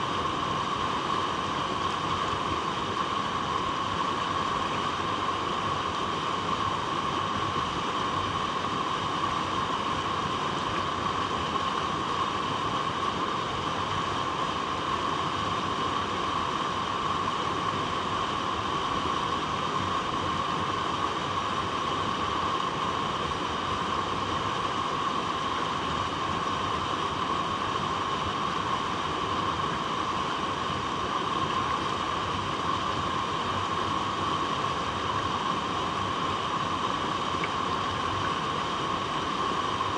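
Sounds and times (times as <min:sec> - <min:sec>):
water flowing over rocks: 0:00.0 - 0:39.9.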